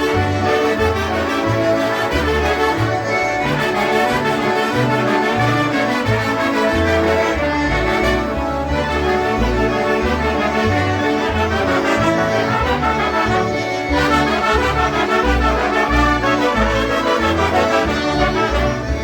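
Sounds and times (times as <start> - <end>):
polka band playing: 0.0 - 19.0.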